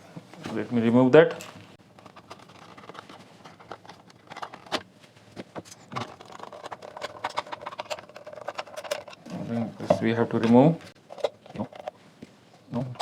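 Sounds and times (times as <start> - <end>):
tools and plastic parts clicking: 1.9 - 4.9, 5.6 - 9.4.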